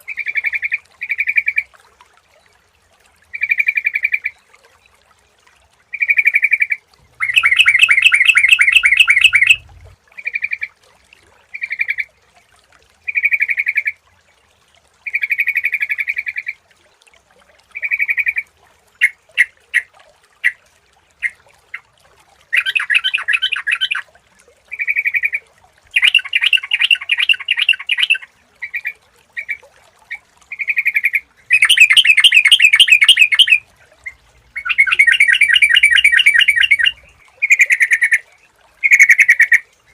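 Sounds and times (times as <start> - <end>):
bulbul calling: 6.0 - 10.6, 22.5 - 24.0, 24.7 - 29.6, 30.5 - 38.2, 38.8 - 39.6.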